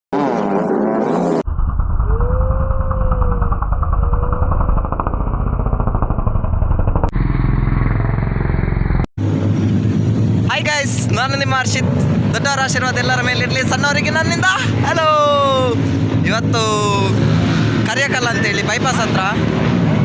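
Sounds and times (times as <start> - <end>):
motorcycle engines revving: 0.1 - 1.5, 2.1 - 20.0.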